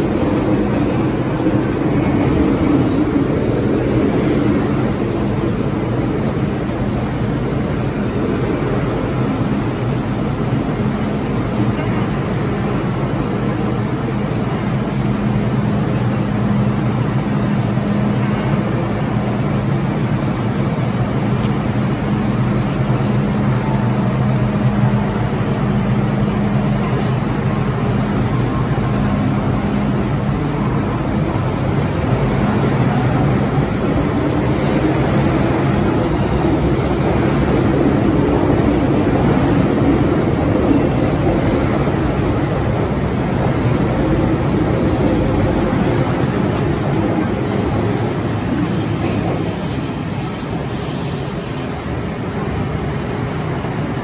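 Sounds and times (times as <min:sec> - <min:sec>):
electric train humming: 0:00.0 - 0:54.0.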